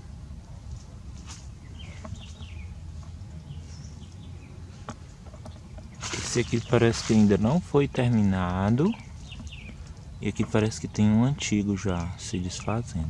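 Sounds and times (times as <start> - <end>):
low steady rumble: 0.0 - 13.0
sliding bird calls: 0.8 - 7.6, 8.3 - 11.2
faint bird chirps: 1.3 - 7.1.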